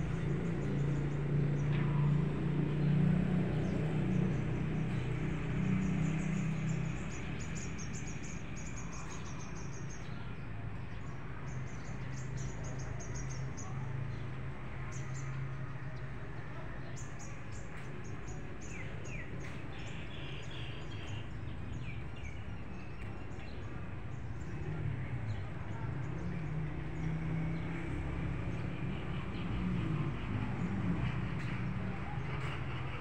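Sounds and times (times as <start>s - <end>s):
small birds chirping: 3.6s - 33.0s.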